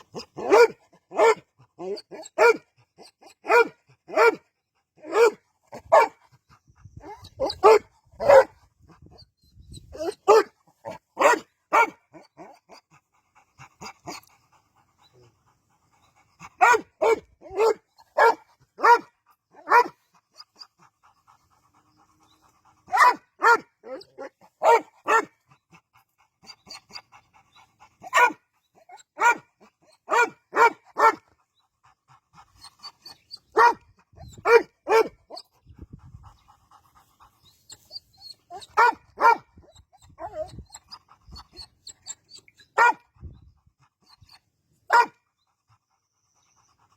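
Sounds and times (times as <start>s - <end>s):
dog barking: 0.2s - 1.4s, 2.4s - 2.6s, 3.4s - 4.4s, 5.1s - 6.2s, 7.4s - 8.5s, 10.1s - 12.0s, 16.6s - 20.0s, 22.9s - 25.3s, 28.1s - 28.4s, 29.2s - 29.5s, 30.1s - 31.2s, 33.6s - 33.8s, 34.4s - 35.2s, 38.7s - 39.5s, 42.8s - 43.0s, 44.9s - 45.2s.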